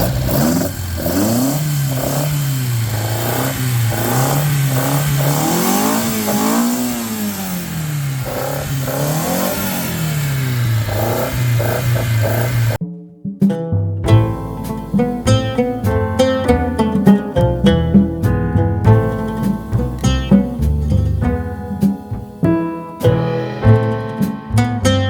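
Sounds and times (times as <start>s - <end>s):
car engine revving: 0.0s - 12.8s.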